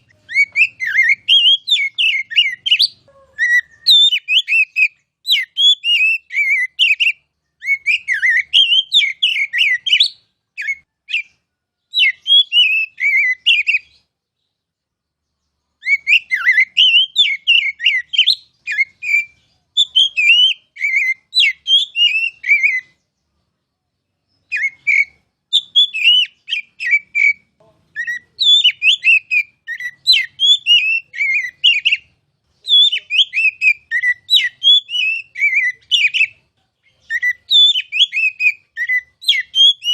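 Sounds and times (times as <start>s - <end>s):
bird singing whistled phrases: 0.0s - 14.1s, 15.8s - 23.2s, 24.2s - 39.9s.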